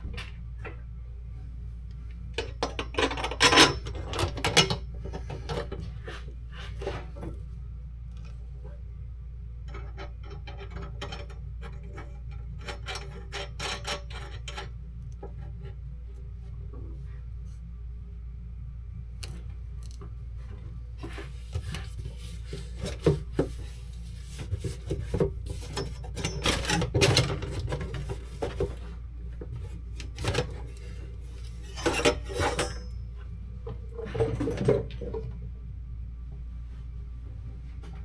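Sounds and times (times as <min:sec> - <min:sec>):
steady low hum: 0:00.0 - 0:38.0
metal tools clinking and scraping: 0:02.4 - 0:05.8, 0:09.7 - 0:14.7, 0:25.1 - 0:28.7, 0:30.2 - 0:33.2.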